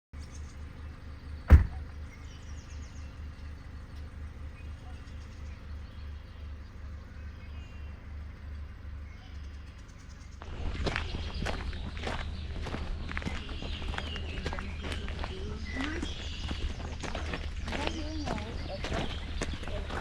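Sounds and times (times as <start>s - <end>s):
faint bird chirps: 0.2s - 20.0s
steady low rumble: 0.2s - 20.0s
sharp knock: 1.5s - 1.9s
footsteps on a trail: 10.4s - 20.0s.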